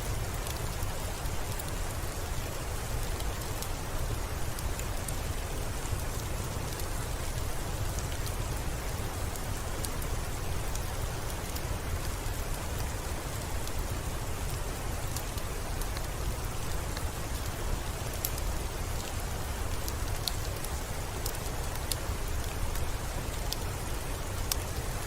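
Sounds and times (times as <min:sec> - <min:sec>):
steady rainfall: 0:00.0 - 0:25.0.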